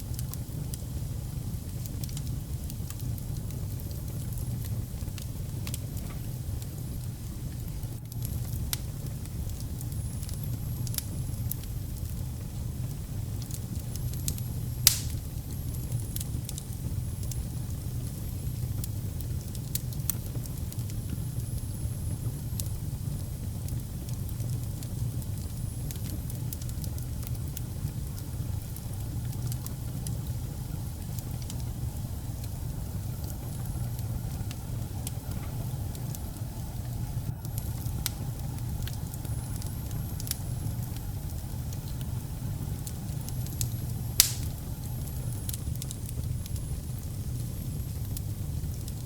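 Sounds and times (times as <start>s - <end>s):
fire rumbling: 0.0s - 49.0s
wood fire crackling: 0.0s - 49.0s
loud fire pop: 14.9s - 15.3s, 44.2s - 44.6s.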